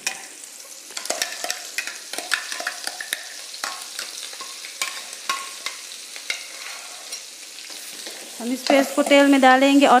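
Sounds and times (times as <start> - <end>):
paste sizzling in hot oil: 0.0 - 10.0
metal spoon scraping steel bowl: 6.3 - 7.2.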